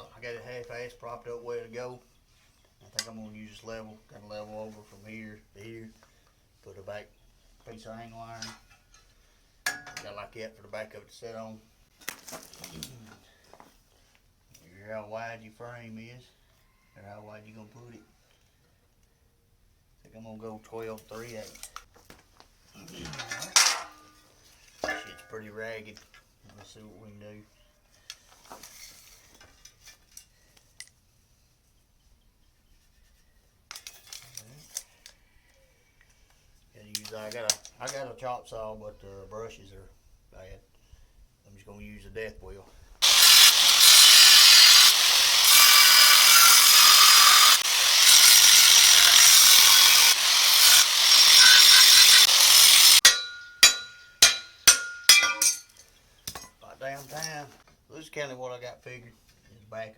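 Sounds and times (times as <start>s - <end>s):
angle grinder cutting steel: 43.0s - 55.6s
metal pieces clinking: 53.0s - 56.6s.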